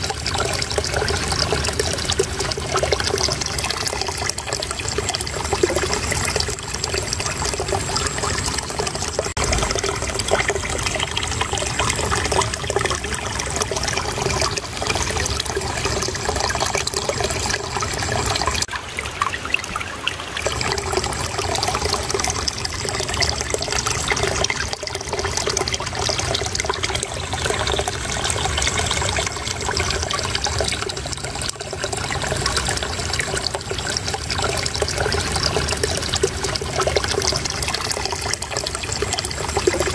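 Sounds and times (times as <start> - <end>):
water babbling and trickling: 0.0 - 39.9.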